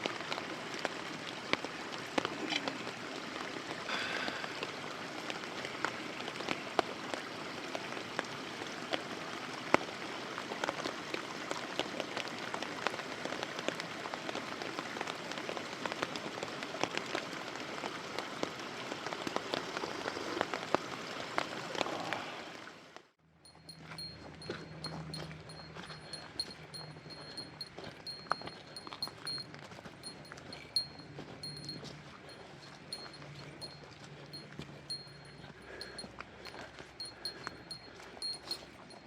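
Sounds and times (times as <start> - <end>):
campfire crackling and popping: 3.6 - 21.9.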